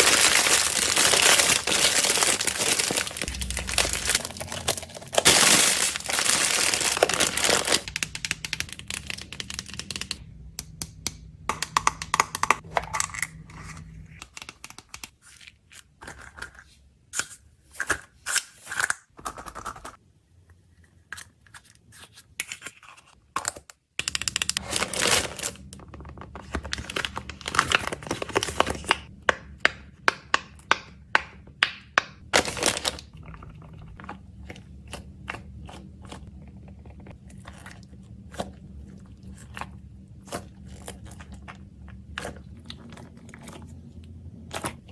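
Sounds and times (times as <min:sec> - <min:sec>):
wrappers crinkling and tearing: 0:00.0 - 0:10.2, 0:24.6 - 0:25.8, 0:26.4 - 0:29.1, 0:32.3 - 0:33.2.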